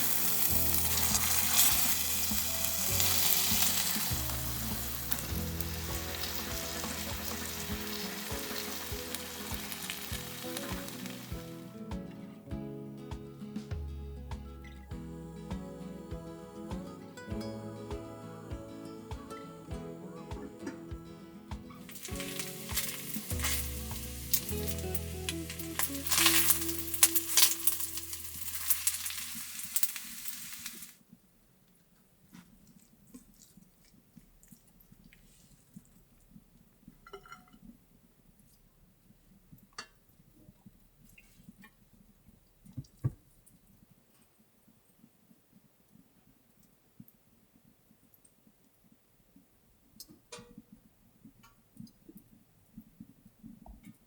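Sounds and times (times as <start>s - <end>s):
food sizzling in a pan: 0.0s - 11.8s, 21.7s - 31.0s.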